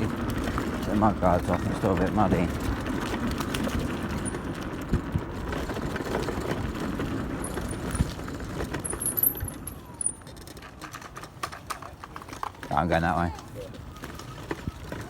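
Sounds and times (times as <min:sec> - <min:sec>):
bike knocking and rattling: 0:00.0 - 0:15.0
tyres and wind rumble: 0:00.0 - 0:15.0.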